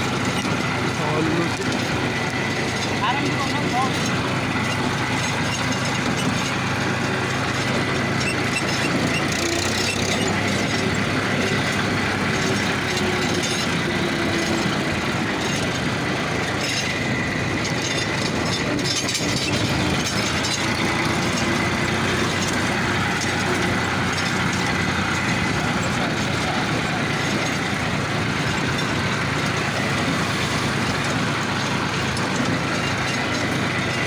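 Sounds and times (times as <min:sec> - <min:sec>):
rattling clatter: 0:00.0 - 0:34.0
tractor diesel engine running: 0:00.0 - 0:34.0.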